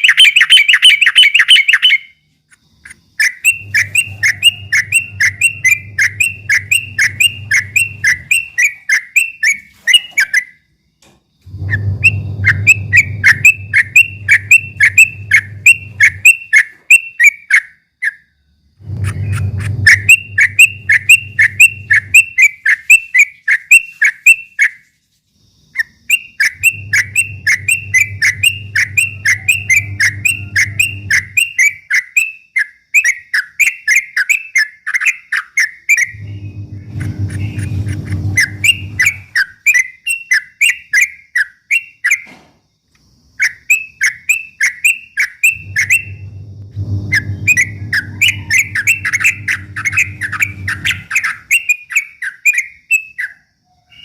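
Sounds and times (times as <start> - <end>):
bird singing repeated whistled notes: 0.0 - 2.2, 2.8 - 10.7, 11.5 - 18.3, 19.0 - 24.8, 25.7 - 42.4, 43.4 - 46.3, 47.0 - 54.0
low hum: 3.5 - 8.6, 11.4 - 16.2, 18.7 - 22.2, 26.6 - 31.6, 36.1 - 39.4, 45.5 - 51.2.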